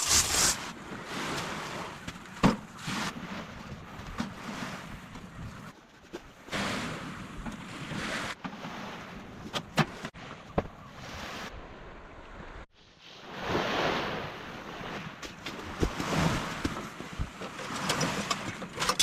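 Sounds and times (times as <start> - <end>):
waves washing: 0.0 - 5.8, 6.4 - 19.0.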